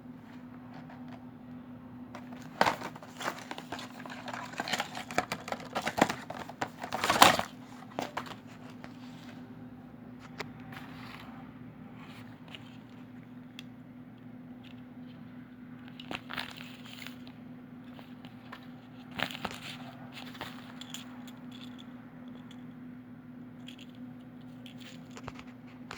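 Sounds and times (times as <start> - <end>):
plastic packaging crinkling: 2.2 - 9.0.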